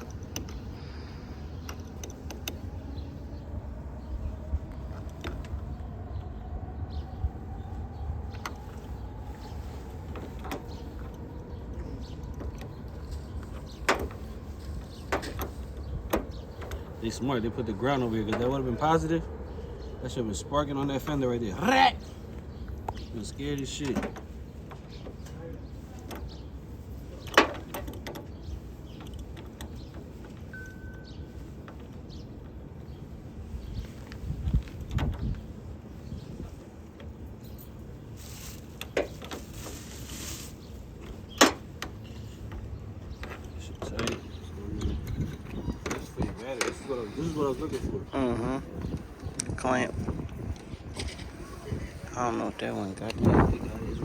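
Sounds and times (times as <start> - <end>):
sharp clicks and knocks: 0.0 - 0.7, 10.1 - 16.9, 27.2 - 31.0.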